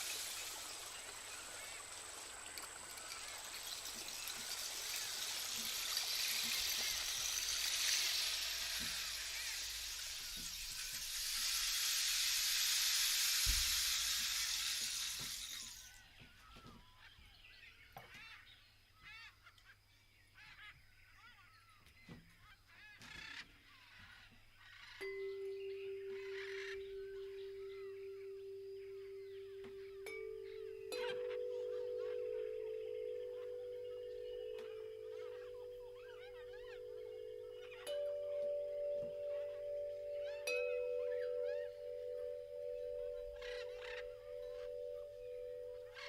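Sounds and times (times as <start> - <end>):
rain-like rushing noise: 0.0 - 15.9
faint steady high tone: 25.0 - 46.0.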